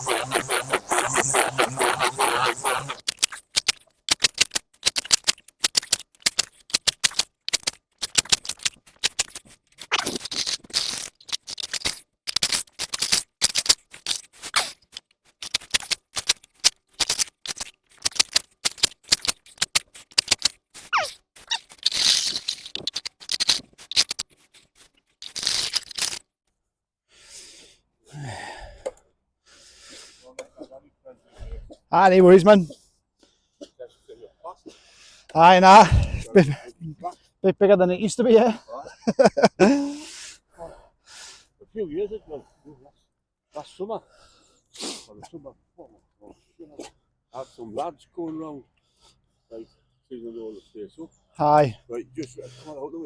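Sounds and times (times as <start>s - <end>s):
spade scraping: 0.0s - 26.2s.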